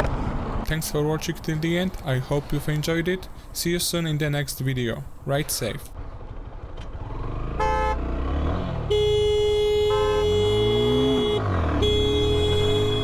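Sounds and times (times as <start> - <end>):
vehicle engines passing: 0.0 - 13.0
vehicle horn honking: 7.6 - 8.0, 8.8 - 13.0.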